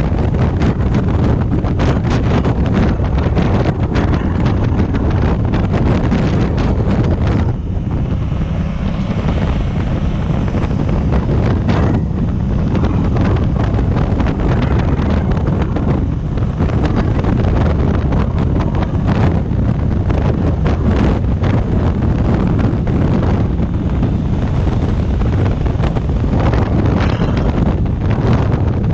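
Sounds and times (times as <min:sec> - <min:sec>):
motorcycle engine: 0:00.0 - 0:28.9
road noise: 0:00.0 - 0:28.9
wind buffeting microphone: 0:00.0 - 0:28.9.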